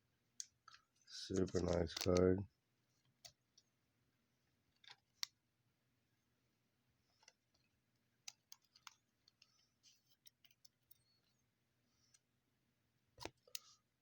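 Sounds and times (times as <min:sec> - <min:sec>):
light plastic rustles: 0:00.7 - 0:02.4.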